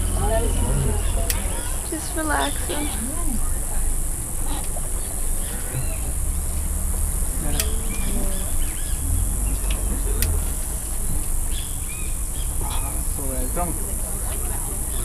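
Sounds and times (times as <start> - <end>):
insect chorus drone: 0.0 - 15.0
low rumble: 0.0 - 15.0.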